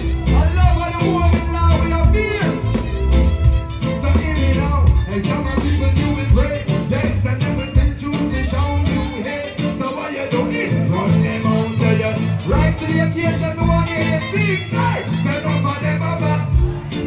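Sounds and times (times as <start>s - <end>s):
person singing: 0.0s - 17.0s
pulsing bass line: 0.0s - 17.0s
reggae band playing: 0.0s - 17.0s.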